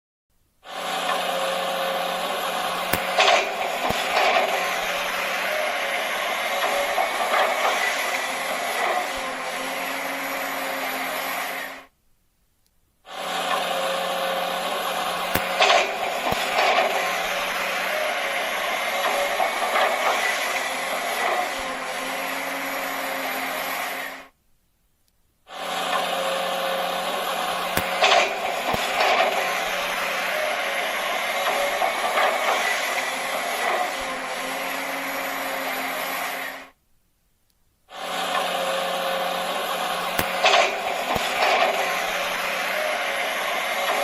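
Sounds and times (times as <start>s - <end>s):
small motor whirring: 0.6s - 11.9s, 13.0s - 24.4s, 25.5s - 36.8s, 37.9s - 44.0s
clicks: 2.5s - 5.7s, 12.4s - 12.9s, 15.0s - 18.1s, 24.9s - 26.0s, 27.3s - 30.5s, 39.8s - 43.0s.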